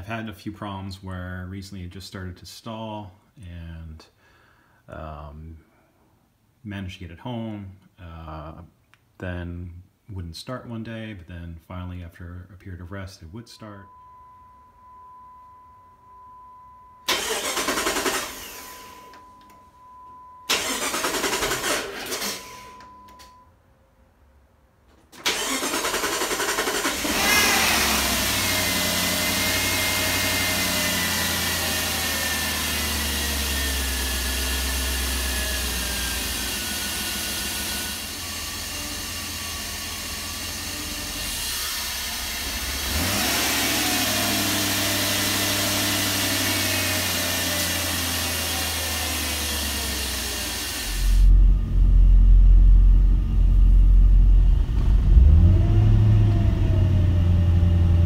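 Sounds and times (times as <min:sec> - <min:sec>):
car engine revving: 0:25.2 - 0:58.0
heavy low rumble: 0:51.0 - 0:58.0.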